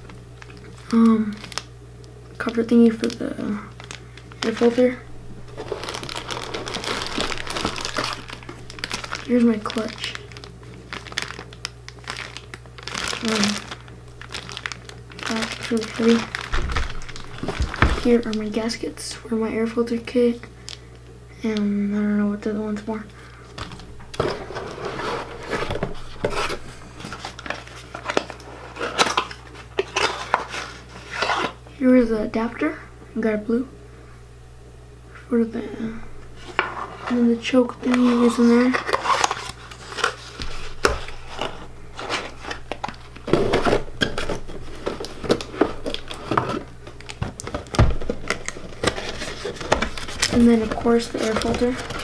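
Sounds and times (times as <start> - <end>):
packaging rustling: 0.0 - 1.7, 2.4 - 18.8, 23.5 - 31.6, 37.8 - 52.0.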